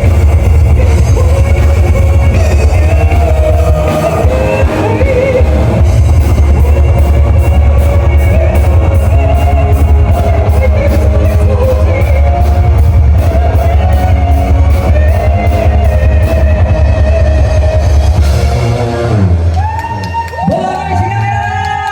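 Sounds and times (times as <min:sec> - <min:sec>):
loud band music with heavy bass: 0:00.0 - 0:21.9.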